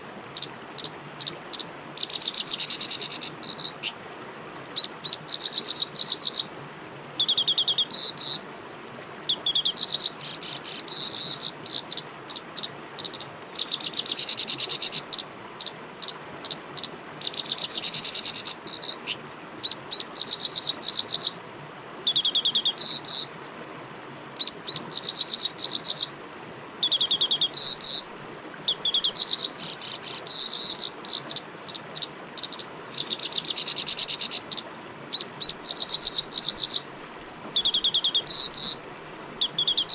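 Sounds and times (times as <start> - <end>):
songbirds trilling and chirping: 0.0 - 4.0, 4.8 - 23.6, 24.4 - 39.9
flowing water: 0.0 - 39.9.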